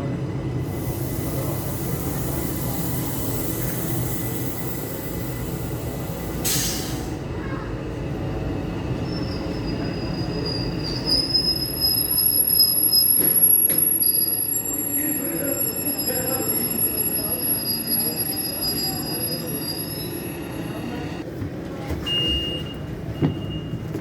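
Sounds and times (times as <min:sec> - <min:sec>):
train rumbling: 0:00.0 - 0:24.0
wheels and brakes squealing: 0:08.8 - 0:21.2.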